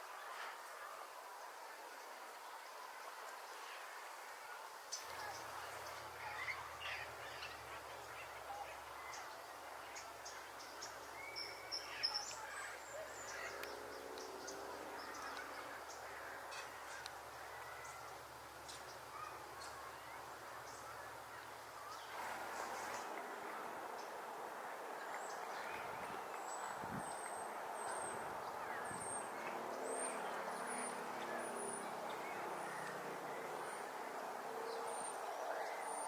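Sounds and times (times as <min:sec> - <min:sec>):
outdoor background noise: 0:00.0 - 0:36.0
bird calls: 0:10.8 - 0:36.0.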